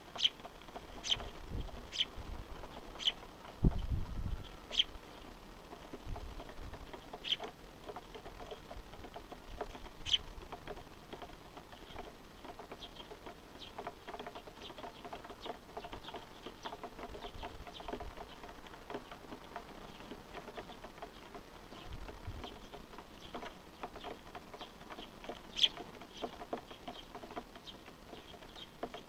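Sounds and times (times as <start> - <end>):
small birds chirping: 0.0 - 29.0
wind rumble on microphone: 1.0 - 2.8, 3.5 - 5.0, 5.9 - 6.9, 21.7 - 22.7.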